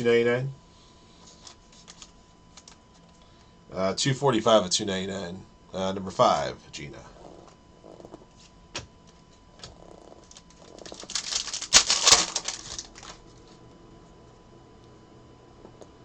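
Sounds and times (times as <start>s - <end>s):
cards flicking and rustling: 1.3s - 3.2s, 9.6s - 13.6s
cards clicking: 1.4s - 3.1s, 9.6s - 13.2s.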